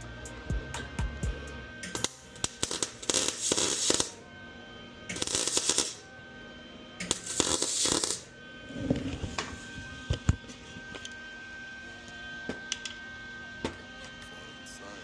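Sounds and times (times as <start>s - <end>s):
background music: 0.0s - 4.1s.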